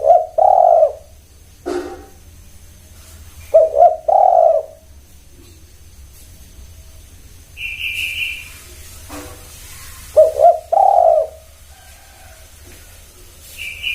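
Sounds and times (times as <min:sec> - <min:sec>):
dove cooing: 0:00.0 - 0:02.0, 0:03.4 - 0:05.0, 0:09.6 - 0:13.0.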